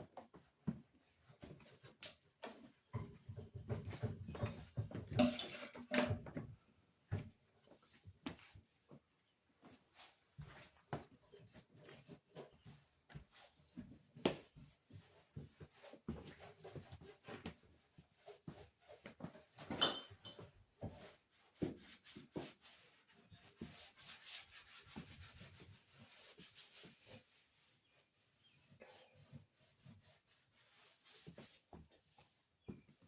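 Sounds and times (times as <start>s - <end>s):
hand rubbing and scraping: 9.6s - 33.0s.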